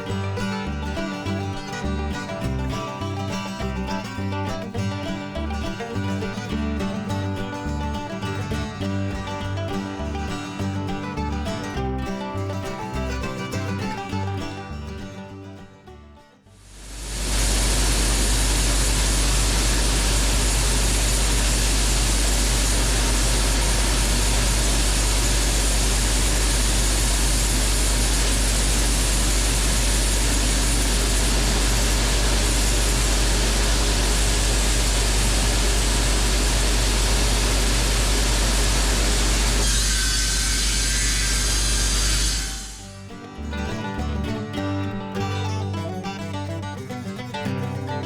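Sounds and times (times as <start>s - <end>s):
steady low hum: 16.7s - 40.0s
band sawmill cutting log: 16.7s - 43.5s.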